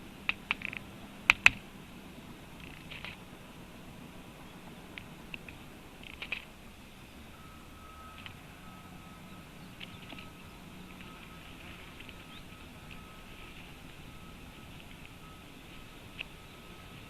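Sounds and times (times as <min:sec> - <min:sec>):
faint steady tone beeps: 0:00.0 - 0:17.0
high bird calls: 0:04.2 - 0:17.0.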